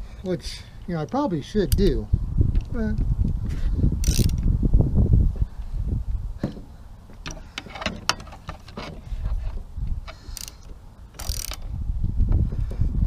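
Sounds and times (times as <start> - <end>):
metal tools clicking and knocking: 7.2 - 11.6.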